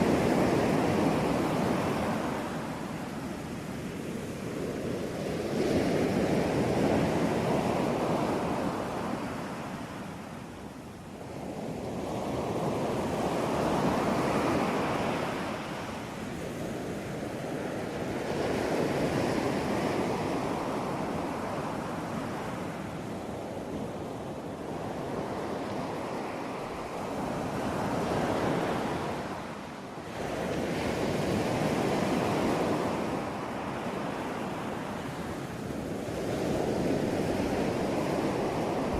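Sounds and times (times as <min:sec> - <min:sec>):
ocean waves breaking: 0:00.0 - 0:03.9, 0:24.3 - 0:38.9.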